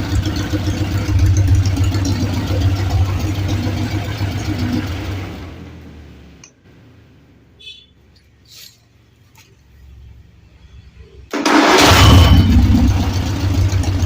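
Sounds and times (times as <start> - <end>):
car engine starting and running: 0.0 - 7.5, 11.2 - 14.0.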